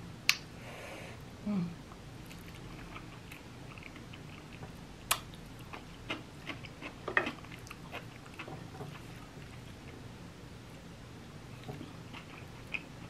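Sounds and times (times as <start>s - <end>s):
person chewing: 2.2s - 10.0s, 11.5s - 13.0s.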